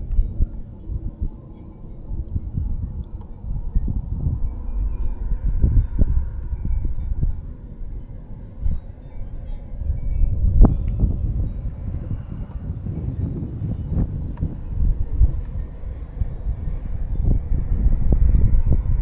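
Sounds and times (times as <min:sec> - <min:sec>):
cricket chirping: 0:00.0 - 0:19.0
wind buffeting microphone: 0:00.0 - 0:19.0.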